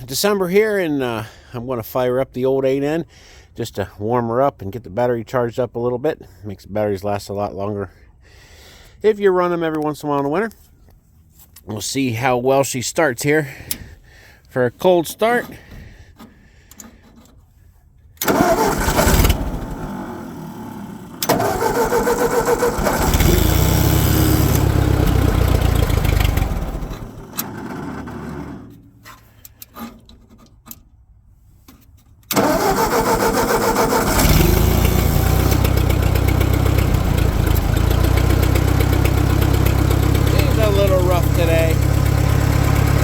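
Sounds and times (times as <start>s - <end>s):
tractor engine cranking and starting: 13.4s - 31.0s, 31.6s - 43.0s
tractor engine running: 18.2s - 29.0s, 32.3s - 43.0s.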